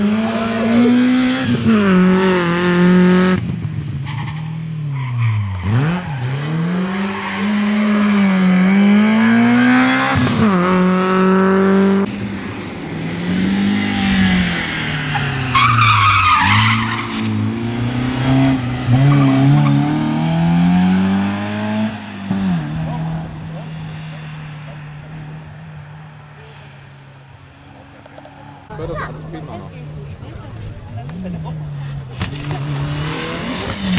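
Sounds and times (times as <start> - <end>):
rally car engine revving: 0.0 - 26.8, 27.7 - 33.9
tyres screeching: 13.8 - 17.5.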